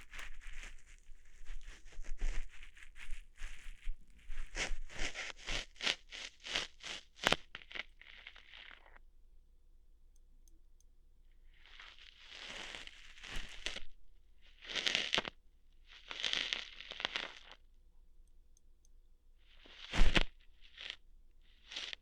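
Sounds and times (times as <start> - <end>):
ear hair plucking crackles: 0.0 - 9.0, 11.6 - 17.6, 19.6 - 21.0, 21.6 - 22.0.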